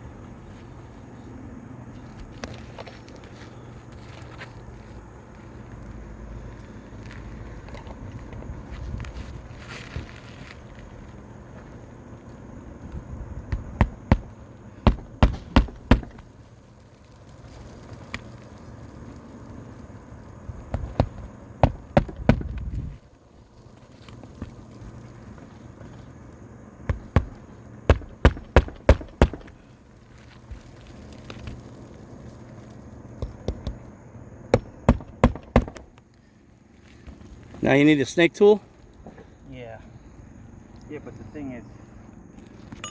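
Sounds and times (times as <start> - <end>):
steady background hum: 0.0 - 42.9
hammer blows on shingle roof: 13.4 - 16.4, 20.7 - 23.0, 26.9 - 29.7, 33.2 - 33.8, 34.5 - 35.9.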